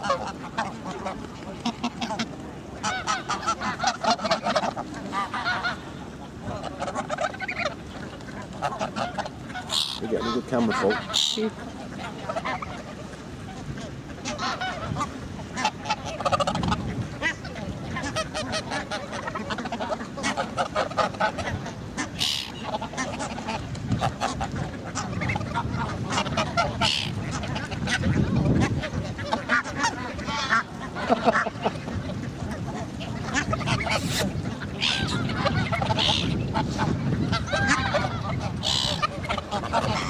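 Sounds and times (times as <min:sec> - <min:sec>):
geese honking: 0:00.0 - 0:40.0
short sharp noises: 0:33.8 - 0:34.4.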